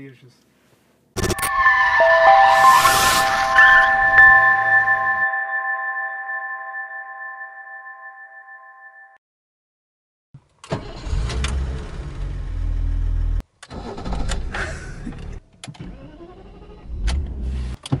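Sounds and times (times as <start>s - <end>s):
car engine and road rumble: 10.4s - 17.9s.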